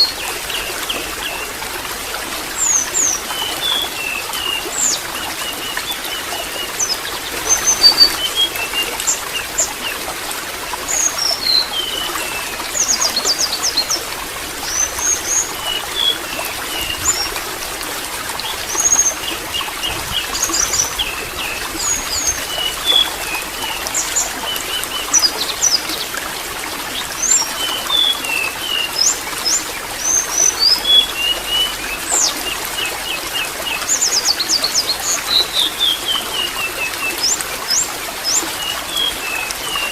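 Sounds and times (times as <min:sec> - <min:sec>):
water trickling: 0:00.0 - 0:39.9
small birds chirping: 0:02.6 - 0:09.9.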